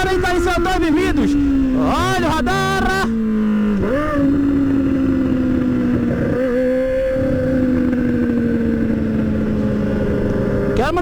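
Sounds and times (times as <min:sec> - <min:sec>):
motorcycle engine cruising: 0:00.0 - 0:11.0
wind and road noise: 0:00.0 - 0:11.0.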